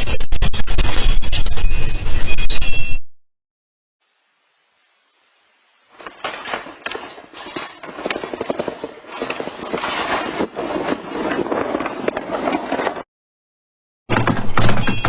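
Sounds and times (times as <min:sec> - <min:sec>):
objects rattling in earthquake: 0:05.9 - 0:13.1.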